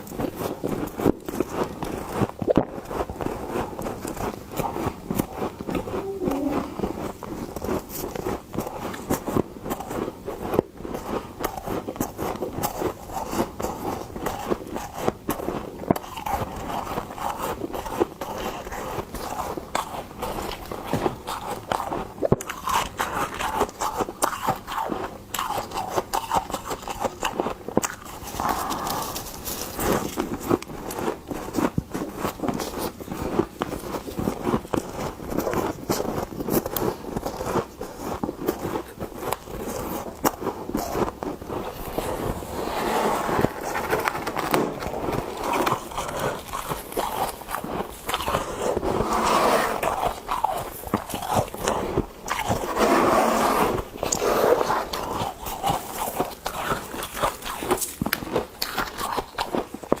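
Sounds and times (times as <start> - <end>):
frost being scraped and crunched: 26.5 - 59.8.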